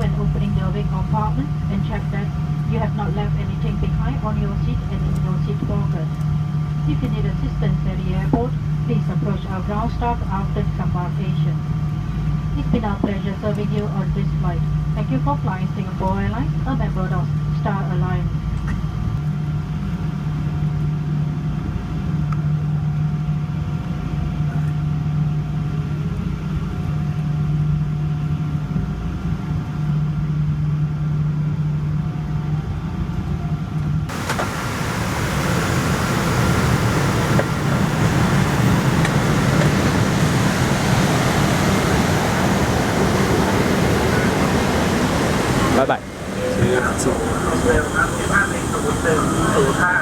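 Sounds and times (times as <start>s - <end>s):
airliner cabin hum: 0.0s - 18.3s, 34.1s - 50.0s
faint whining engine tones: 0.0s - 50.0s
even rushing noise: 34.1s - 50.0s.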